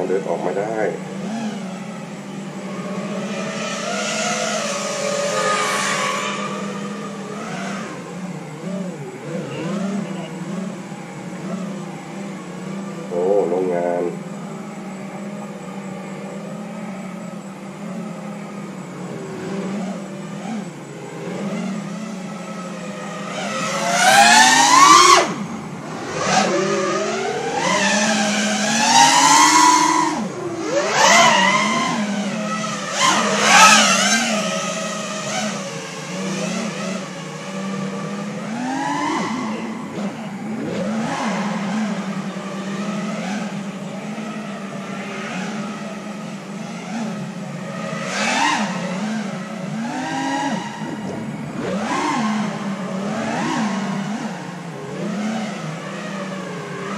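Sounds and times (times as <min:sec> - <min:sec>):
drone motors whining: 0:00.0 - 0:56.9.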